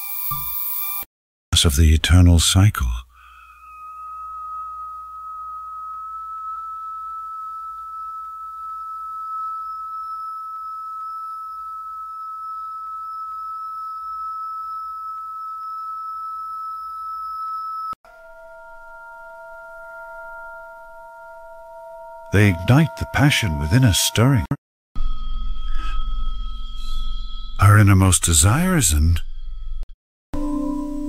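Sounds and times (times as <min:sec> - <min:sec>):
steady pure tone: 0:01.6 - 0:29.8
low held chord: 0:18.1 - 0:24.0.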